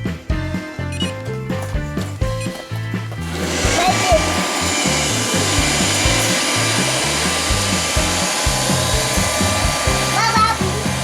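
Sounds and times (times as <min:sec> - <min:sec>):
background music: 0:00.0 - 0:11.0
high whine: 0:03.2 - 0:11.0
robot vacuum cleaner running: 0:03.4 - 0:10.9.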